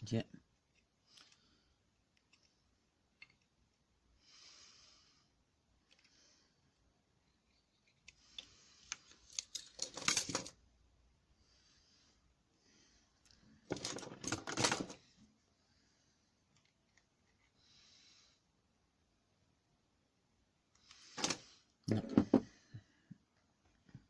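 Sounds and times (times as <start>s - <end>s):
small metal parts rattling: 9.1s - 10.6s, 13.7s - 15.0s.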